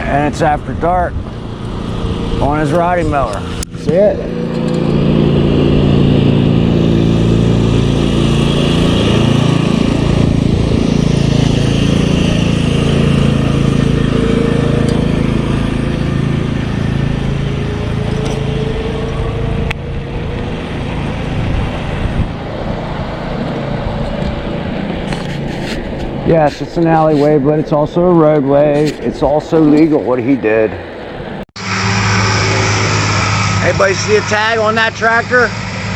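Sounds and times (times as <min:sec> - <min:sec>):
riding mower engine passing: 0:00.0 - 0:35.9.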